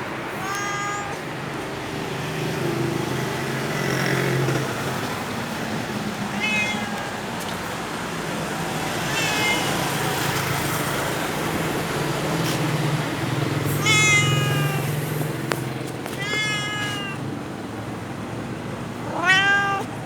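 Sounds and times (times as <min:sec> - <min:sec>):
cat meowing: 0:00.3 - 0:01.7, 0:06.3 - 0:07.6, 0:08.9 - 0:10.4, 0:13.7 - 0:15.1, 0:16.1 - 0:17.3, 0:18.9 - 0:20.0.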